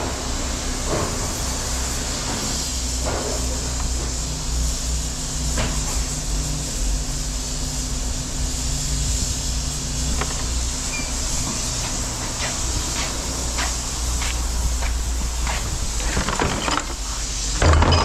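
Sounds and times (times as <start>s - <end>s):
large engine running: 6.7s - 18.0s.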